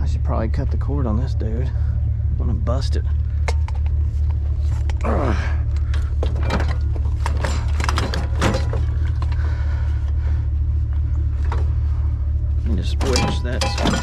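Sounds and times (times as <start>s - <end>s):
truck engine idling: 0.0s - 14.0s
knocks and clatter of breaking item: 6.2s - 9.3s, 13.0s - 14.0s.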